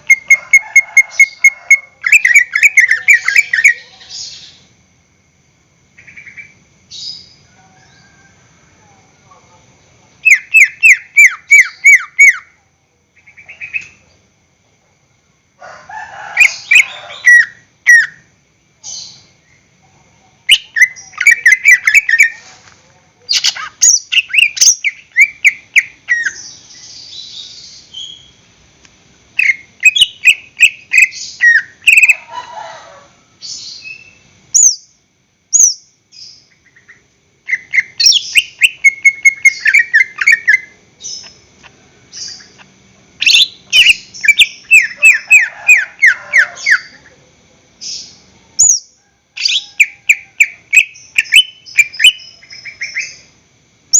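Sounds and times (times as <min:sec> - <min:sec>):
bird singing whistled notes: 0:20.5 - 0:22.4, 0:29.4 - 0:32.2, 0:37.5 - 0:41.4, 0:43.2 - 0:45.8, 0:47.9 - 0:53.2.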